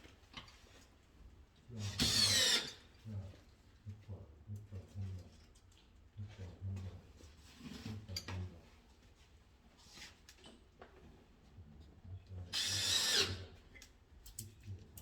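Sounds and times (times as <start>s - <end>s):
power drill whining: 2.0s - 2.8s, 12.6s - 13.5s.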